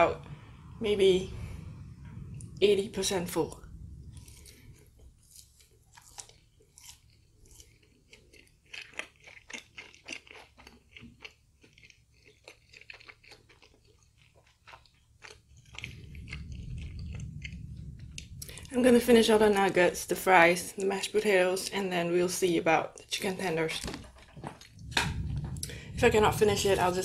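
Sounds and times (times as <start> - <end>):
low rumble: 0.0 - 6.7, 15.5 - 20.5, 24.0 - 27.0
person chewing crunchy food: 4.0 - 18.7.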